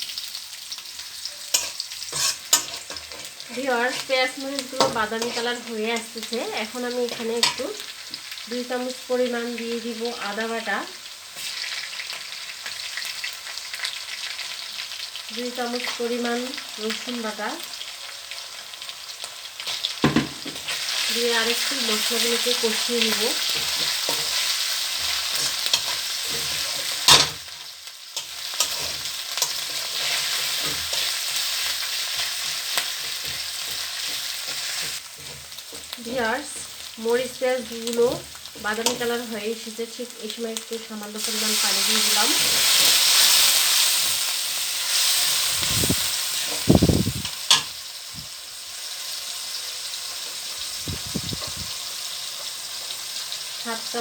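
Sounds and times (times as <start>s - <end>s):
food sizzling in hot oil: 0.0s - 54.0s
spatula scraping a pan: 1.4s - 6.2s, 20.5s - 36.9s, 41.2s - 46.7s.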